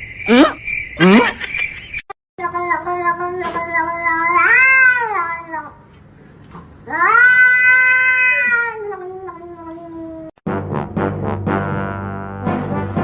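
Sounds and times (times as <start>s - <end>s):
cat yowling: 3.7s - 5.8s, 6.9s - 10.3s.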